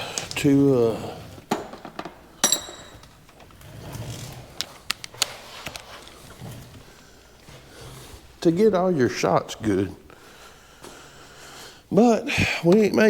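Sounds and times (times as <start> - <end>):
metal tools clinking and scraping: 0.2 - 4.8.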